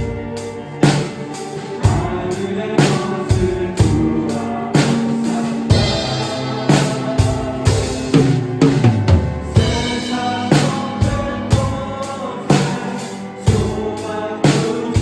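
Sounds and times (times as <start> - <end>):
drum kit playing: 0.0 - 15.0
worship song backing track: 0.0 - 15.0
cymbals ringing: 4.4 - 9.0.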